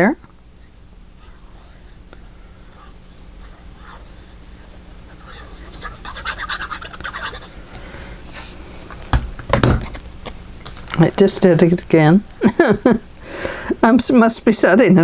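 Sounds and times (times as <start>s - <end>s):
short high hiss: 8.2s - 8.8s.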